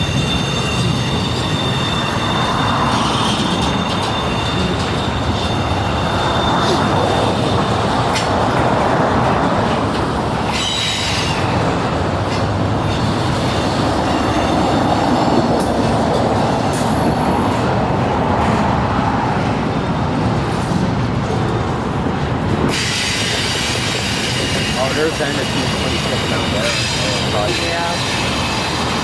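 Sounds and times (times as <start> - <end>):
wheel squeals: 0.0 - 8.4, 10.4 - 11.6, 22.7 - 29.0
freight train cars rumbling: 0.0 - 29.0
train clanks: 0.0 - 29.0.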